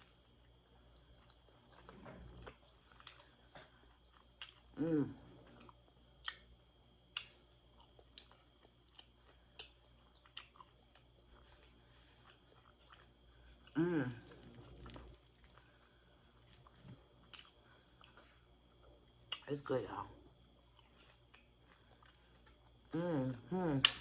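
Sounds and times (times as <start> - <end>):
chewing crispy fried fish: 0.0 - 19.6, 20.4 - 23.0
person humming: 4.8 - 5.2, 13.8 - 14.3, 22.9 - 24.0.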